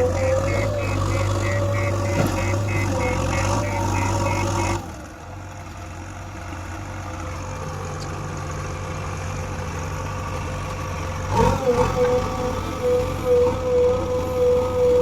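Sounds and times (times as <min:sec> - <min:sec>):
heavy machinery diesel engine: 0:00.0 - 0:15.0.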